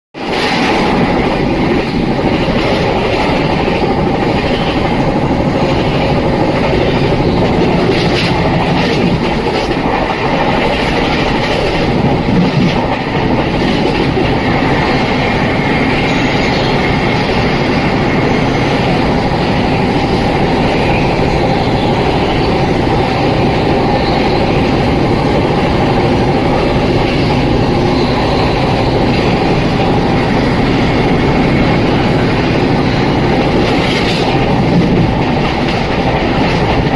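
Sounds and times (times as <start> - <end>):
train wheels on rails: 0.2 - 36.9.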